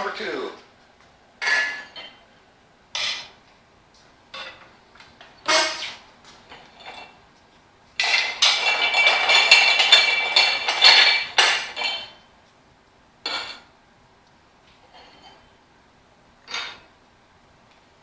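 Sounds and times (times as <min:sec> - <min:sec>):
ringing metal scrape: 0:01.4 - 0:02.2, 0:05.4 - 0:06.1
metal wheel rim clanking: 0:01.4 - 0:02.4, 0:03.0 - 0:03.4, 0:04.3 - 0:07.2, 0:08.0 - 0:12.2, 0:16.5 - 0:16.9.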